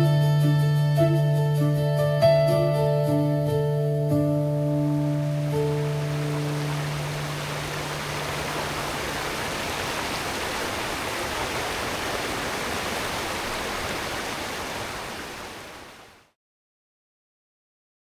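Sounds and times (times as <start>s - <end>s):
running water rushing: 4.6s - 16.3s.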